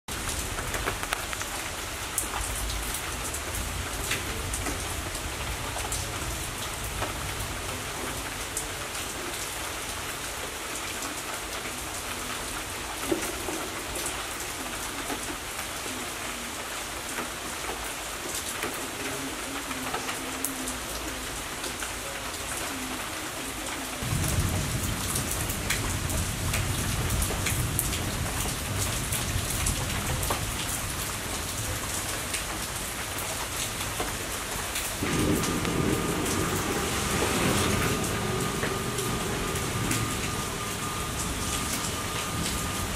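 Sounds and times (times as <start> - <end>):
rain falling on plants: 0.1 - 42.9
low rumble: 35.0 - 42.9.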